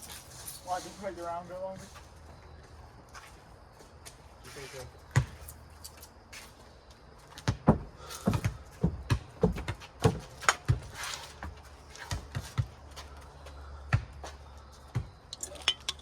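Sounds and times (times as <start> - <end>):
ball kicked and bouncing: 5.1 - 5.5, 7.3 - 13.1, 13.9 - 16.0.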